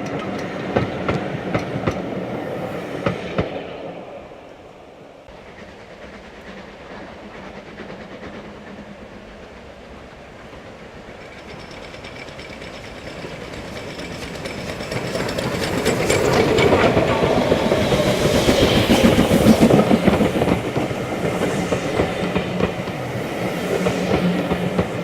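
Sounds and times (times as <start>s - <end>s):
steam train approaching: 0.0s - 25.0s
wheels clicking over rail joints: 11.0s - 21.4s.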